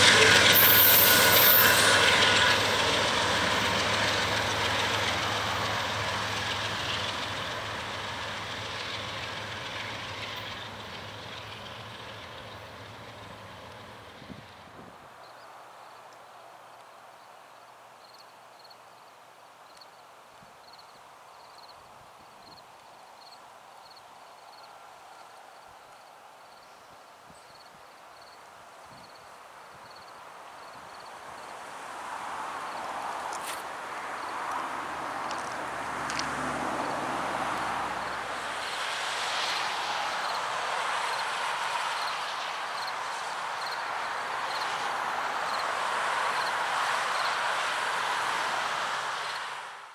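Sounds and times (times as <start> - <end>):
train wheels rolling on rail: 0.0 - 15.0, 29.8 - 49.9
insect chirping: 17.6 - 18.8, 20.6 - 21.8, 23.2 - 26.8, 27.4 - 28.4, 29.0 - 31.5, 42.0 - 42.9, 43.6 - 44.7.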